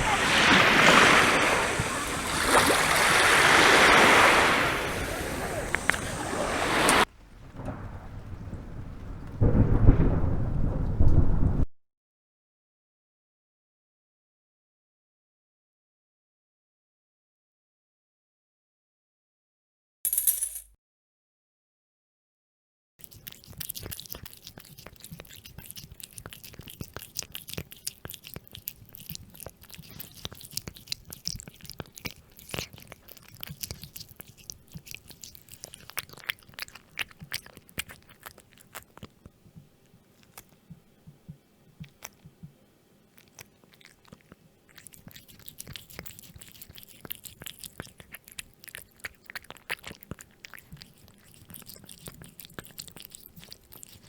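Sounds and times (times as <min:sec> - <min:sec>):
cat chewing and crunching: 0:00.0 - 0:07.1, 0:23.0 - 0:54.0.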